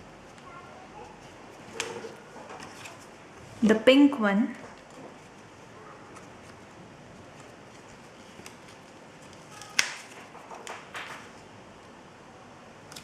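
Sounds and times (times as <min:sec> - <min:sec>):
paper rustling: 0:00.3 - 0:03.2, 0:04.6 - 0:11.5.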